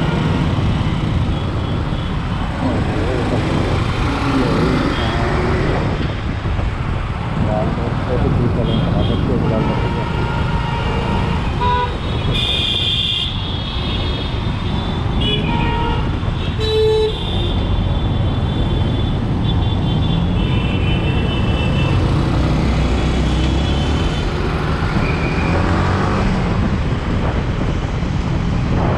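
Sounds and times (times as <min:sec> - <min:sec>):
road and wind noise: 0:00.0 - 0:28.9
vehicle horns honking: 0:08.6 - 0:14.1, 0:15.1 - 0:17.7.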